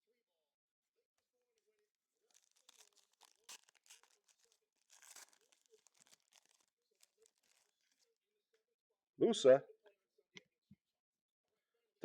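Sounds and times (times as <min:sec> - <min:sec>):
wrapper crinkling and tearing: 0:02.2 - 0:08.1
cards being handled: 0:02.4 - 0:08.0.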